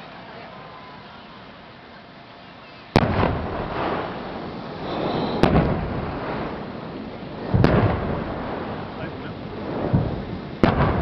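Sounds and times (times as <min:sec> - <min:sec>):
fireworks booming with echo: 0:02.9 - 0:11.0.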